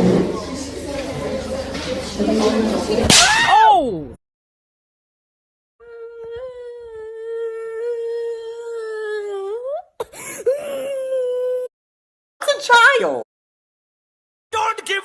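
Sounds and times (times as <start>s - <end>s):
person humming a long note: 5.8s - 9.7s.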